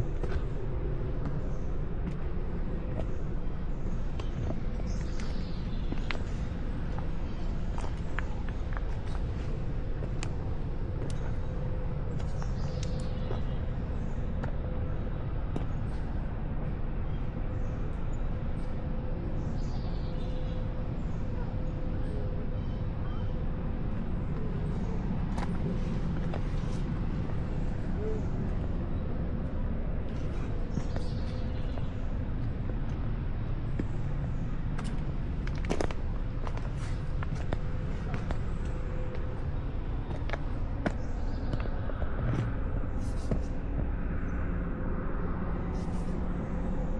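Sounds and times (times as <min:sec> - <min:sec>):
small birds chirping: 0:00.0 - 0:15.0, 0:19.4 - 0:43.9
faint constant hum: 0:00.0 - 0:46.9
low rumble: 0:00.0 - 0:46.9.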